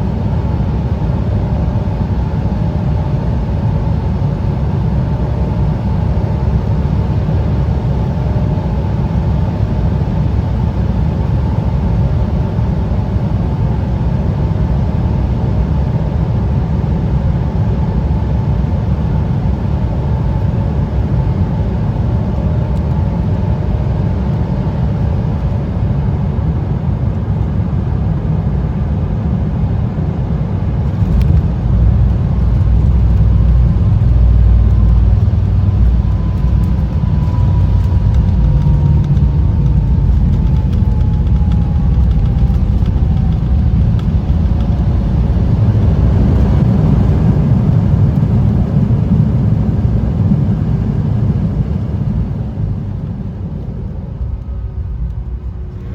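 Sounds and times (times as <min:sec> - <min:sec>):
jet engines and airflow rumble: 0:00.0 - 0:55.9
faint steady whine: 0:30.1 - 0:55.9.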